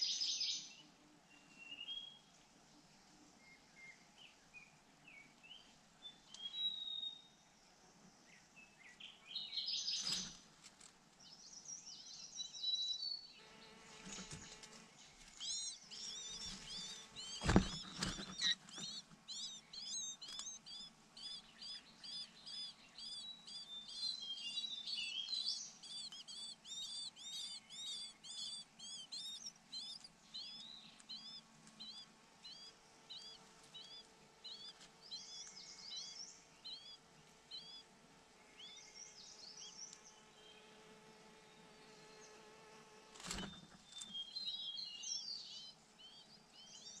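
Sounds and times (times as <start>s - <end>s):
young bird begging chirps: 15.3s - 37.0s.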